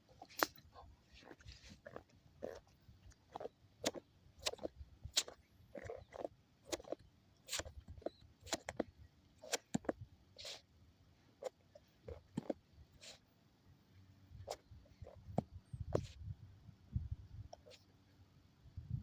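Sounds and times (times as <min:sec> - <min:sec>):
dog chewing a ball: 0:01.2 - 0:10.6.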